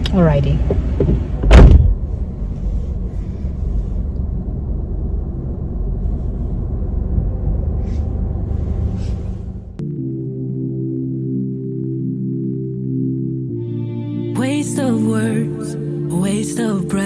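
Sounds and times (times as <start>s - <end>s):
car engine idling: 0.0s - 9.8s
sharp thump: 1.0s - 2.0s.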